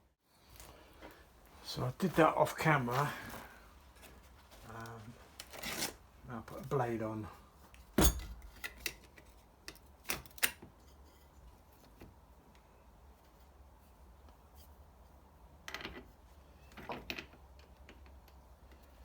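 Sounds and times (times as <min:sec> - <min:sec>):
scraping rustling handling noises: 0:00.5 - 0:09.6.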